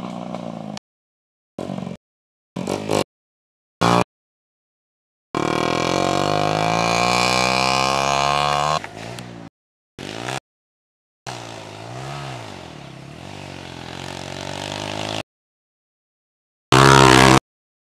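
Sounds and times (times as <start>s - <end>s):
dirt bike engine revving: 2.6s - 3.1s, 3.8s - 4.1s, 5.4s - 10.4s, 11.3s - 15.2s, 16.7s - 17.4s.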